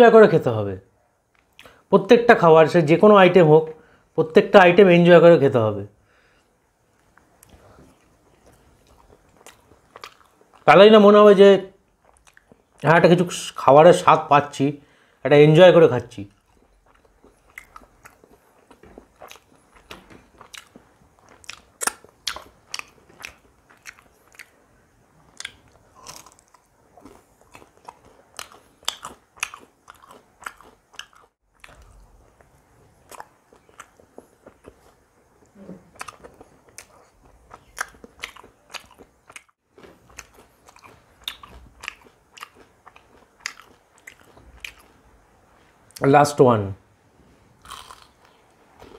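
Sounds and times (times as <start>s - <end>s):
chewing and biting chicken: 25.3s - 35.0s, 35.9s - 44.9s, 47.6s - 48.9s.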